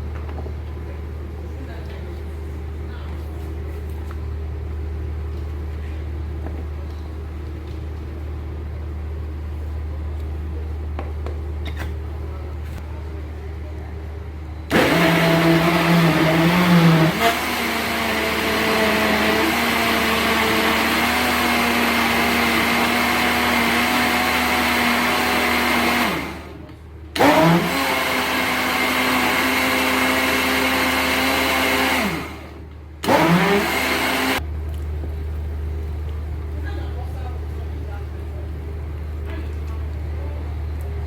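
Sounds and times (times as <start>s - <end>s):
electric blender motor: 14.7s - 34.4s.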